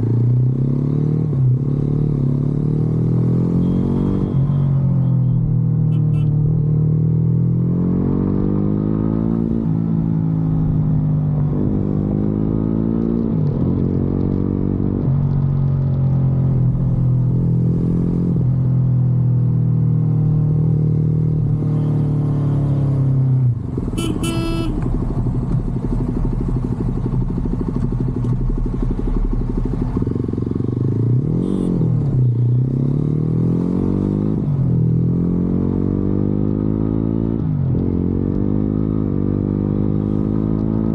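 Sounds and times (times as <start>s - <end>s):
motorcycle engine running: 16.6s - 33.0s.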